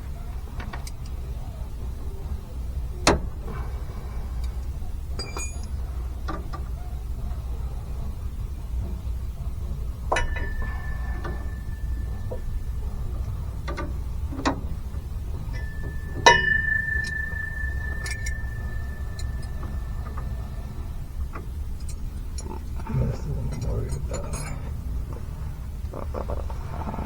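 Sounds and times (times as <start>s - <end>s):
metal hand tools clinking: 5.2s - 5.7s, 10.1s - 14.5s, 15.5s - 20.4s
low hum: 8.8s - 25.9s
ringing metallic strikes: 10.0s - 21.9s.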